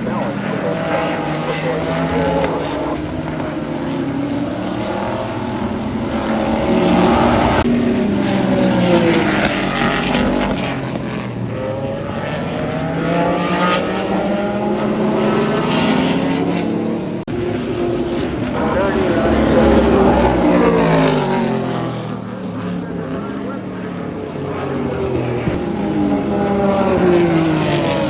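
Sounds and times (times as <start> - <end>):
race cars passing at speed: 0.0 - 28.0.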